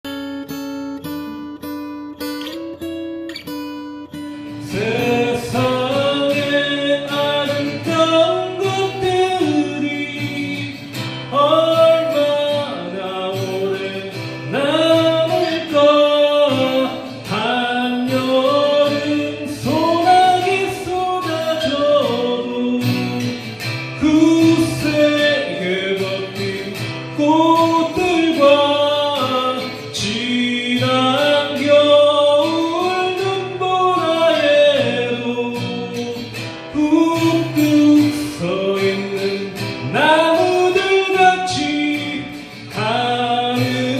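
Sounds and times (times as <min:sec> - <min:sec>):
acoustic guitar playing: 0:00.0 - 0:43.9
person singing: 0:04.5 - 0:43.9.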